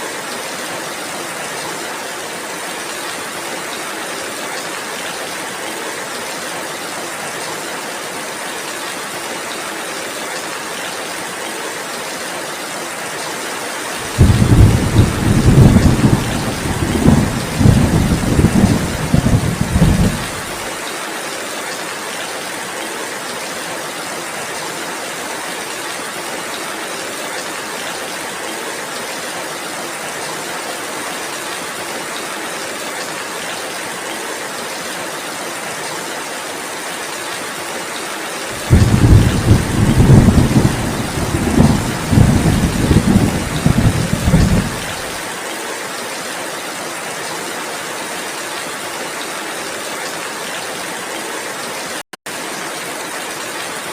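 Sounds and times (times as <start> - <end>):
heavy rain: 0.0 - 53.9
thunder rumbling: 14.1 - 20.6, 38.6 - 45.2.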